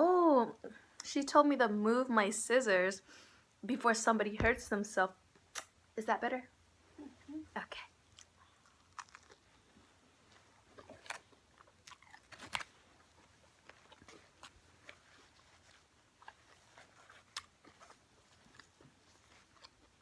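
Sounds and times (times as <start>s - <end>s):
egg roll being chewed: 8.0s - 20.0s
crisp wrapper crunching: 8.2s - 9.6s, 10.7s - 20.0s.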